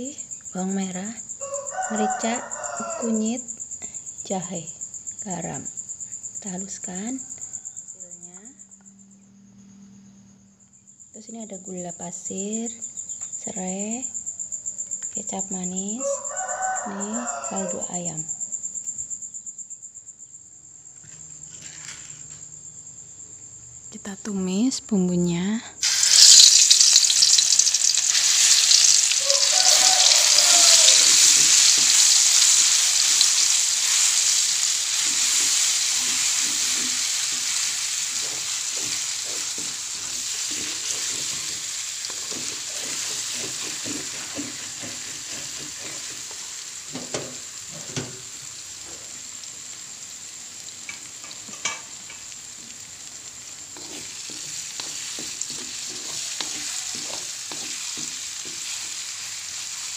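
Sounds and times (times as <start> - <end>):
spice paste sizzling in oil: 0.0 - 7.8, 25.8 - 59.9
spatula scraping a wok: 21.4 - 22.4, 25.8 - 48.2, 53.5 - 59.9.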